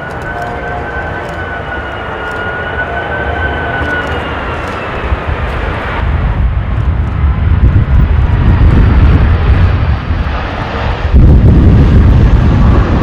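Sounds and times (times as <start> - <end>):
jet airliner engines: 0.0 - 13.0
wind buffeting microphone: 3.4 - 13.0.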